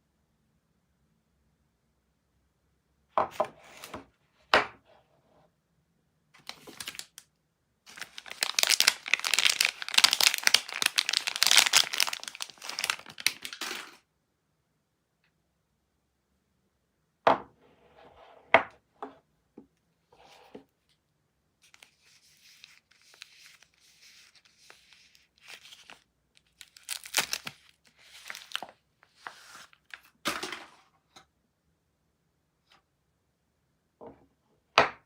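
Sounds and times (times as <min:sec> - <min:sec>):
wrapper crinkling and rustling: 0:06.4 - 0:07.2, 0:07.9 - 0:14.0, 0:21.6 - 0:30.2
wrapper ripping: 0:06.4 - 0:07.2, 0:07.9 - 0:14.0, 0:21.7 - 0:28.7.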